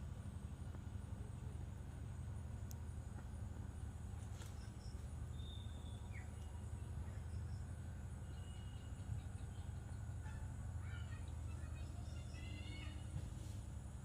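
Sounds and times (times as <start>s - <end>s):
faint bird chirps: 4.4s - 13.2s.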